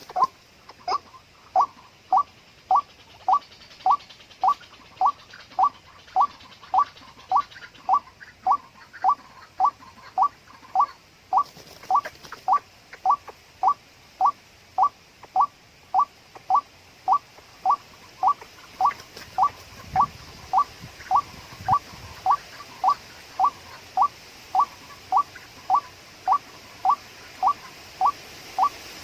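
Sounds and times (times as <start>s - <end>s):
waterhen call: 0.0s - 29.0s.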